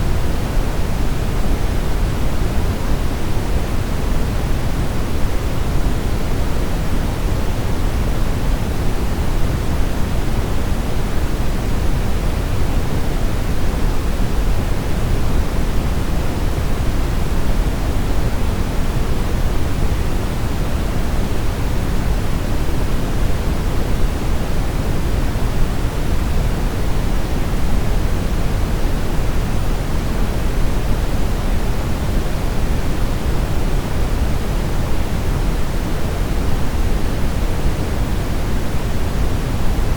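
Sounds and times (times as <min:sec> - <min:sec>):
deep brown noise hiss: 0:00.0 - 0:39.9.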